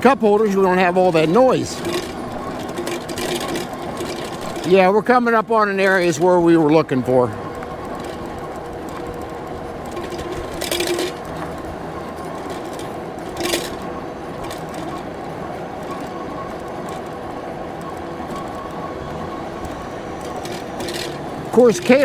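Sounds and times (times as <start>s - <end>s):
electric bike motor whine: 0.0s - 22.0s
tyre and road noise: 0.0s - 22.0s
metal mug rattling on frame: 1.7s - 4.8s, 8.8s - 15.2s.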